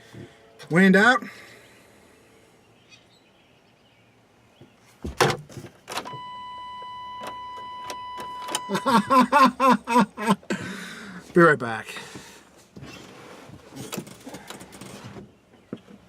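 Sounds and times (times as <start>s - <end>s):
vehicle warning beep: 6.0s - 9.5s.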